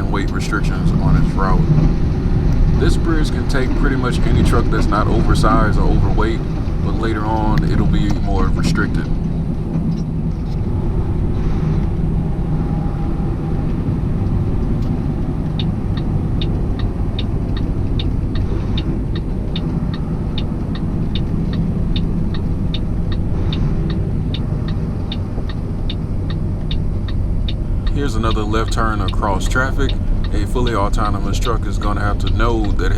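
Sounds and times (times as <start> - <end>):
truck engine and road rumble: 0.0 - 32.9
turn signal clicking: 2.5 - 9.2, 13.6 - 32.9.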